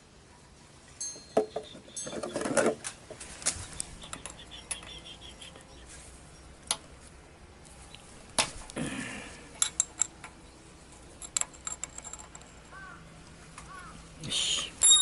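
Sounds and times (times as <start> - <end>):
light metallic clinks: 1.0 - 2.3, 4.0 - 5.1, 9.5 - 13.0, 13.6 - 15.0.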